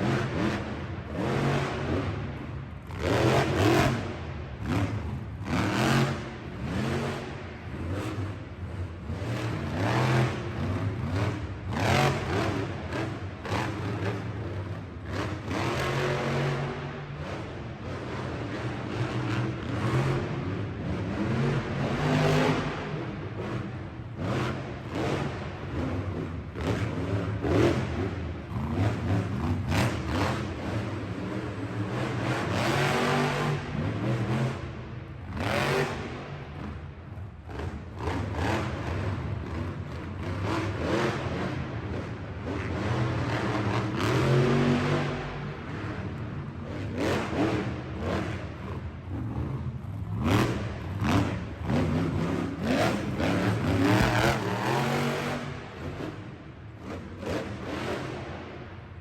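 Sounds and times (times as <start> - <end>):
truck engine revving: 49.1 - 56.2.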